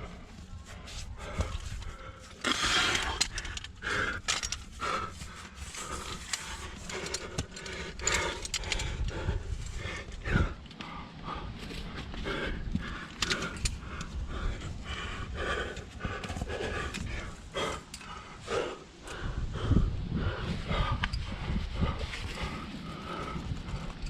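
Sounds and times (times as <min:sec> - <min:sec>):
person breathing hard: 0:00.0 - 0:24.0
steady low rumble: 0:00.0 - 0:24.0
gear scraping and knocking on rock: 0:01.3 - 0:10.8.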